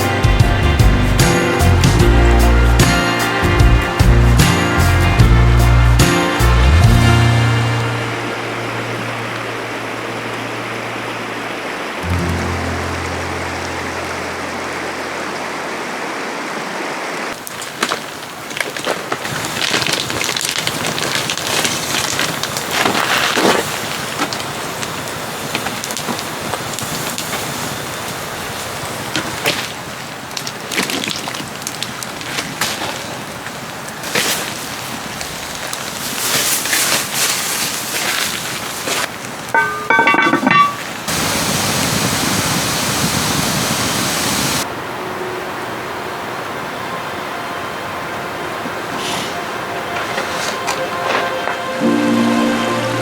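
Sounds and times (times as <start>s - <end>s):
rushing water: 0.0s - 53.0s
steady rain: 0.0s - 53.0s
pitched notes: 12.0s - 15.0s, 49.7s - 53.0s.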